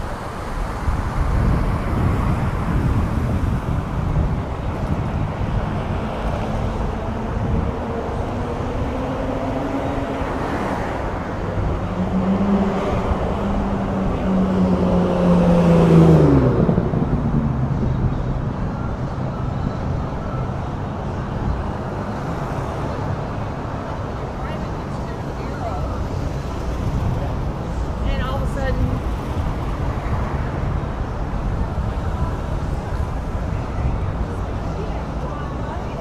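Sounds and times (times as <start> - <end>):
vehicle passing close by: 0.0 - 19.1
road traffic noise: 0.0 - 36.0.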